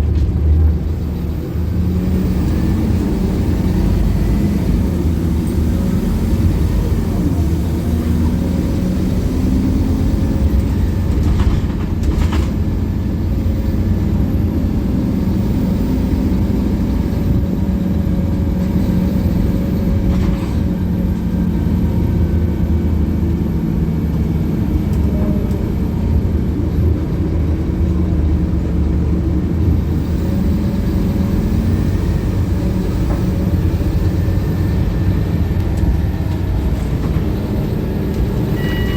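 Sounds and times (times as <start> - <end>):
bus engine running: 0.0 - 38.9
faint whine: 37.8 - 38.9.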